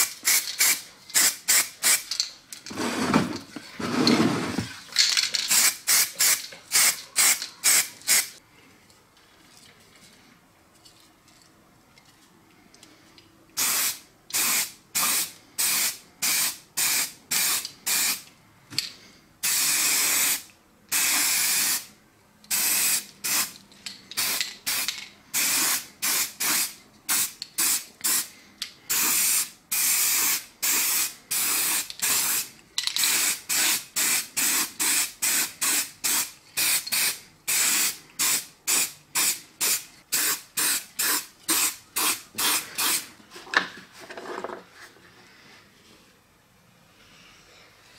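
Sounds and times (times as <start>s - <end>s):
spray paint can spraying: 0.0s - 2.3s, 5.2s - 8.4s, 13.6s - 18.2s, 19.4s - 21.9s, 22.5s - 23.6s, 24.2s - 28.3s, 28.9s - 43.1s.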